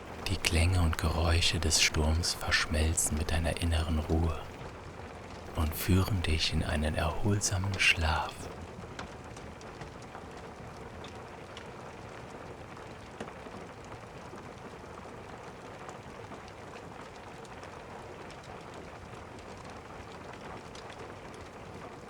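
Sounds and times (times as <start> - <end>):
steady rain: 0.0 - 4.6.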